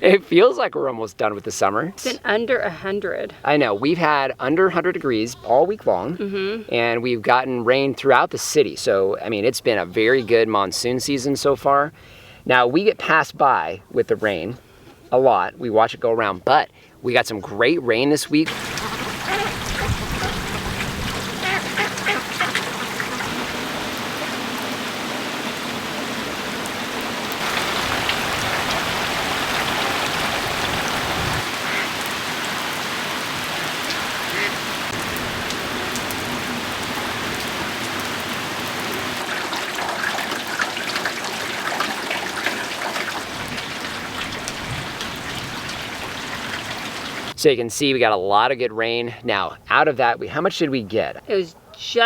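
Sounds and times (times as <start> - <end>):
ducks quacking: 18.5 - 26.2, 31.4 - 32.1, 33.6 - 34.7
steady rain falling: 18.5 - 47.4.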